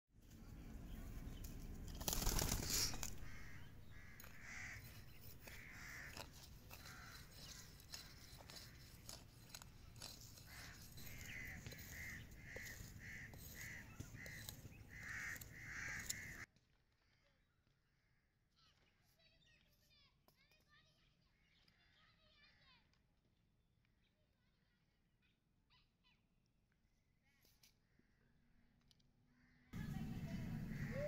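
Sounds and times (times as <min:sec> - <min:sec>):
faint crow cawing: 0:02.6 - 0:16.4, 0:29.3 - 0:31.0.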